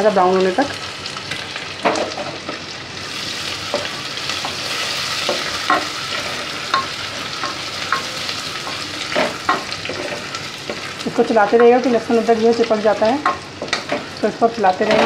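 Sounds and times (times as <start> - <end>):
paste sizzling in ghee: 0.0 - 15.0
spatula scraping and knocking pot: 5.2 - 10.9.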